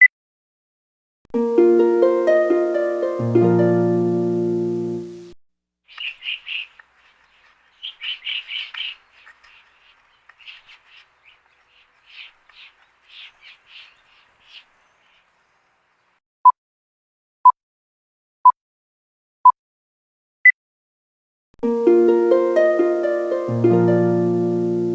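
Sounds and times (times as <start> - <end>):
bird chirping: 5.9 - 16.1.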